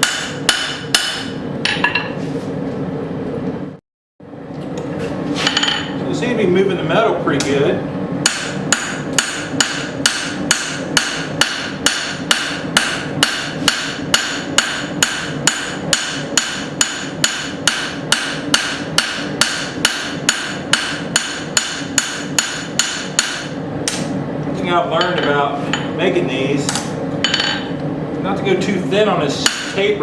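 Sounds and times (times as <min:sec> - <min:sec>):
hammer striking hot steel on anvil: 0:00.0 - 0:02.1, 0:08.2 - 0:24.1, 0:26.7 - 0:27.7, 0:29.4 - 0:29.8.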